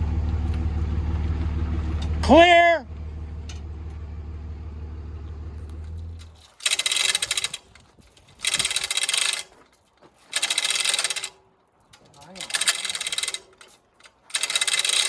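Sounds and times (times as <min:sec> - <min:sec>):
chain hoist rattling and clicking: 0:05.7 - 0:15.0.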